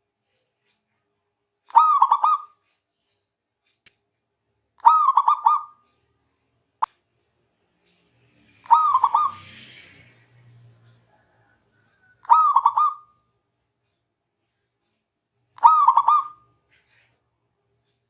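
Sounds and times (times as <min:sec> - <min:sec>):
dove cooing: 0:01.7 - 0:02.6, 0:04.8 - 0:05.8, 0:08.7 - 0:09.6, 0:11.4 - 0:13.1, 0:15.6 - 0:16.5.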